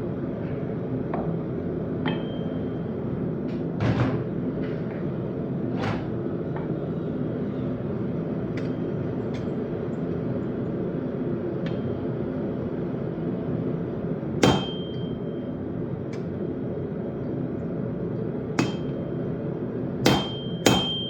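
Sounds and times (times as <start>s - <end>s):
steady droning hum: 0.0s - 21.0s.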